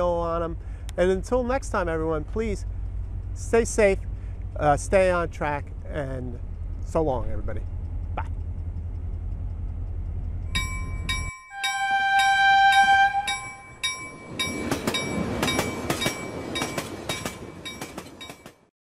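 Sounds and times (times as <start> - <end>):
low outdoor rumble: 0.0 - 18.2
rushing train: 0.0 - 18.7
train bell ringing: 10.3 - 18.7
train horn blast: 11.5 - 13.7.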